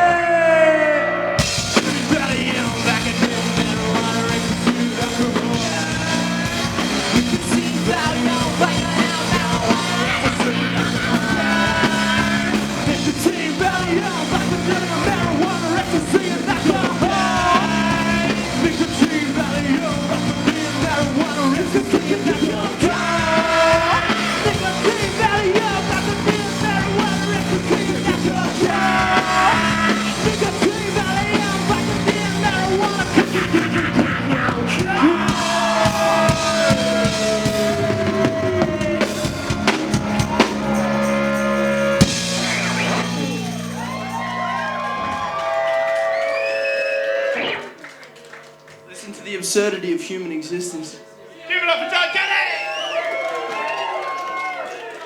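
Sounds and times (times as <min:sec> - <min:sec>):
person singing: 0:00.0 - 0:39.7
live rock band playing: 0:00.0 - 0:49.1.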